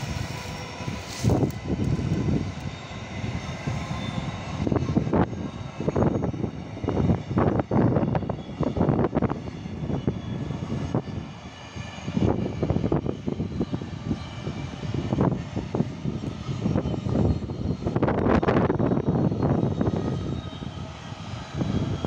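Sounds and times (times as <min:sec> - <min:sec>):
freight train rumbling past: 0:00.0 - 0:09.7.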